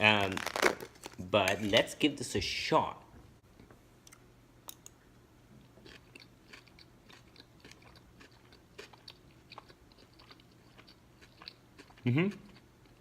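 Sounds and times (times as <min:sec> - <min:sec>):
chewing with crunches: 0:05.5 - 0:13.0.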